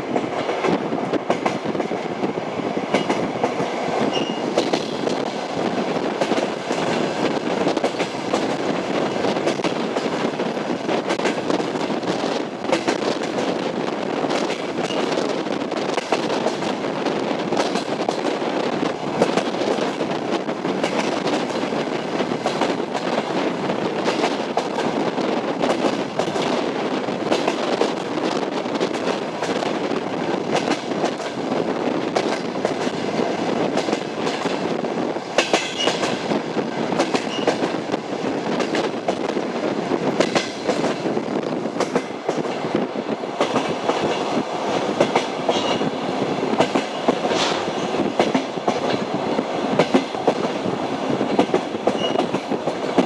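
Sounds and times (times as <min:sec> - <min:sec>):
train wheels clattering over joints: 0:02.9 - 0:53.0
wheel squeals: 0:04.1 - 0:04.5, 0:52.0 - 0:52.2.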